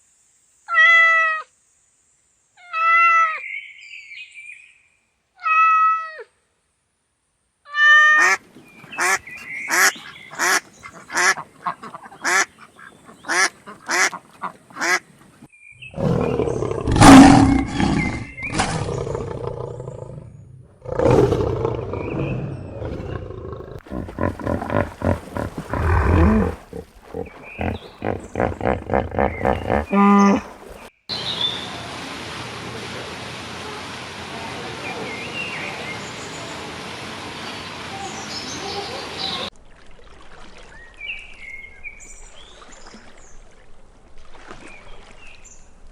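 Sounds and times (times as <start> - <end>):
farm animal calls: 7.8 - 15.0, 23.8 - 30.8.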